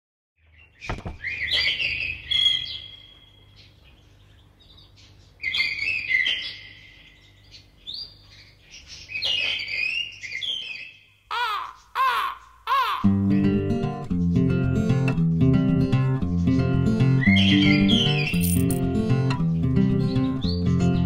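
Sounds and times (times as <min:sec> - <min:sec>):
bird chirps and trills: 0:00.4 - 0:13.1, 0:17.2 - 0:18.8.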